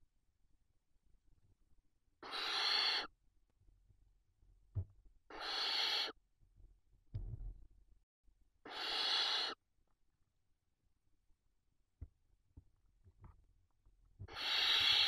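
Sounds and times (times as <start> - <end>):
owl chicks hissing calls: 2.2 - 3.1, 5.3 - 6.2, 8.6 - 9.6, 14.3 - 15.0
soft knock: 7.1 - 7.6.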